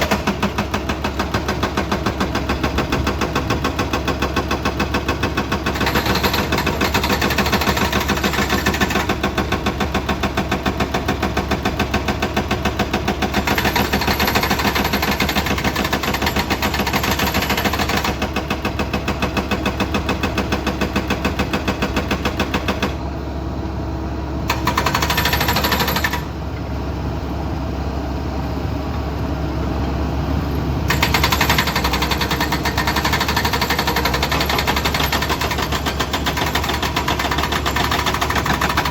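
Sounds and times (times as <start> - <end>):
excavator diesel engine running: 0.0 - 38.9
fast hammering clatter: 30.9 - 38.9.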